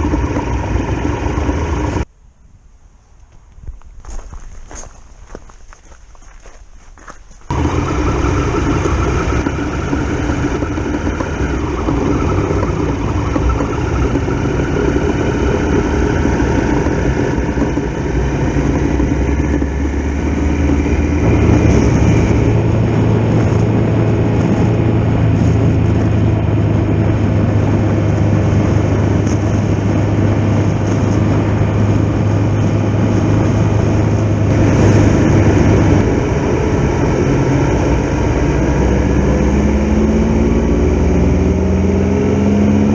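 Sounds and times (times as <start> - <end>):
motorcycle engine running: 0.0 - 2.1, 7.5 - 42.9
strong low steady tone: 7.5 - 28.4, 31.3 - 41.8.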